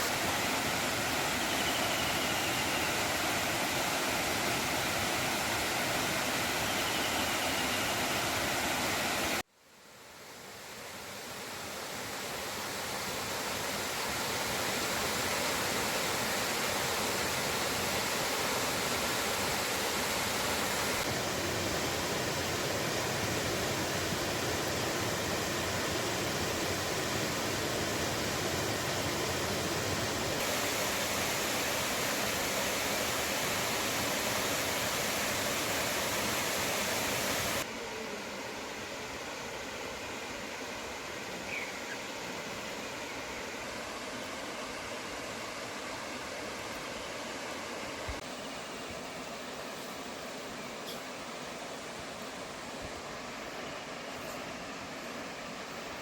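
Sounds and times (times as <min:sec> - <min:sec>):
waterfall roaring: 0:12.4 - 0:39.5.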